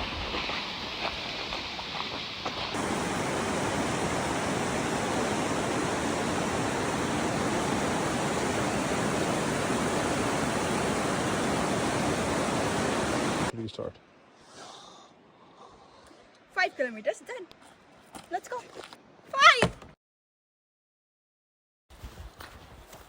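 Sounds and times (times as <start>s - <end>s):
rushing water roar: 0.0s - 13.5s.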